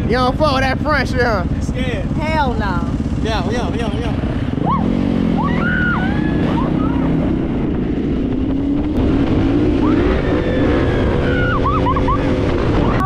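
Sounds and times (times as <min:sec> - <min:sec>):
dirt bike engine accelerating: 0:00.0 - 0:13.0
high rising and falling cries: 0:04.5 - 0:08.5, 0:09.2 - 0:13.0.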